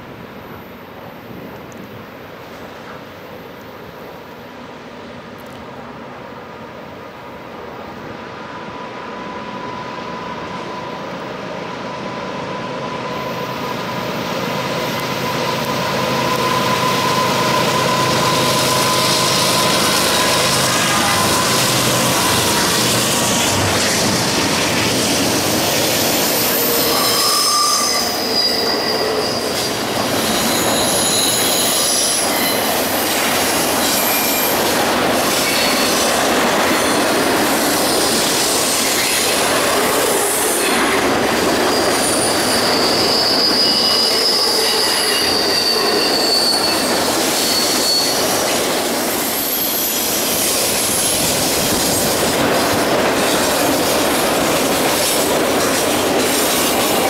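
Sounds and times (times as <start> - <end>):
steel wheels rumbling on rails: 8.8 - 57.0
high-pitched wheel squeal: 12.0 - 23.9, 26.0 - 34.6, 41.6 - 51.1.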